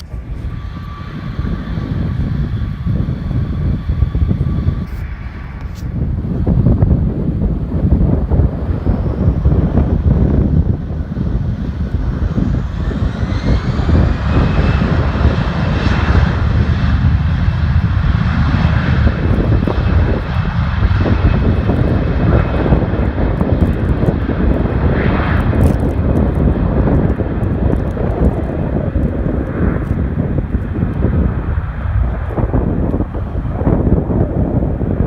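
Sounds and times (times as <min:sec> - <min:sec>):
jet engines rumbling with whine: 0:00.0 - 0:35.0.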